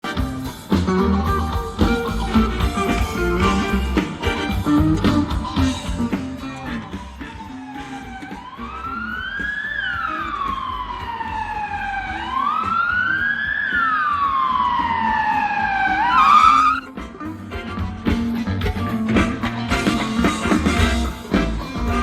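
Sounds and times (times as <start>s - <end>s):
band music with guitar: 0.0s - 8.2s, 15.8s - 22.0s
emergency vehicle siren wailing: 7.2s - 16.9s.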